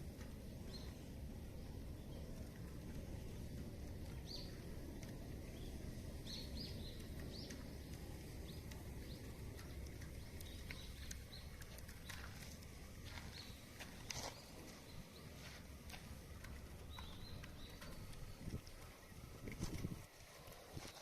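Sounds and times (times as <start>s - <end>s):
low outdoor rumble: 0.0s - 21.0s
small birds chirping: 0.0s - 21.0s
sharp clicks: 6.3s - 14.2s.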